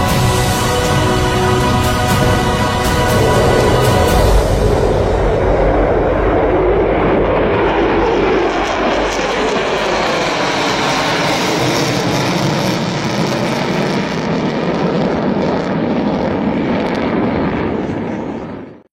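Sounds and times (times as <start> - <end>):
jet engines roaring in flight: 0.0 - 18.9.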